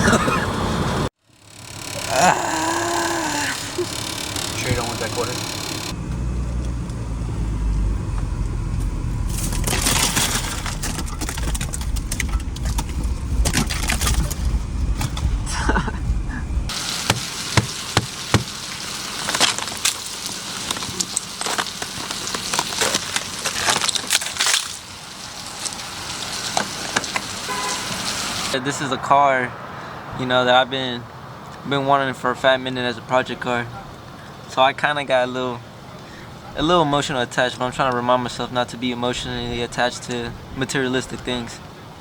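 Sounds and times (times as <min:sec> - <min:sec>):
car engine and road noise: 0:00.0 - 0:42.0.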